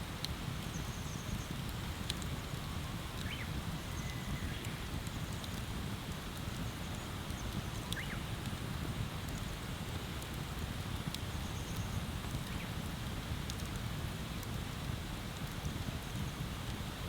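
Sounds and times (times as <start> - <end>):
bonfire crackling: 4.5 - 16.8.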